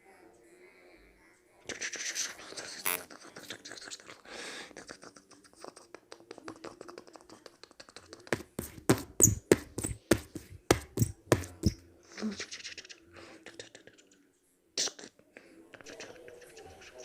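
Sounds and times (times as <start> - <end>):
sharp knocks: 8.4 - 11.8.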